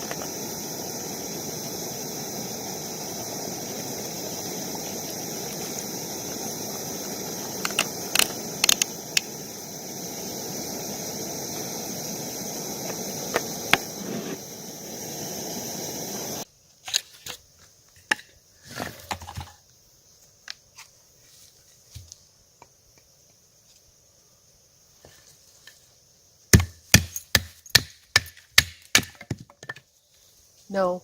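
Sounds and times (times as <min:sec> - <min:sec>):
steady rushing noise: 0:00.0 - 0:16.4.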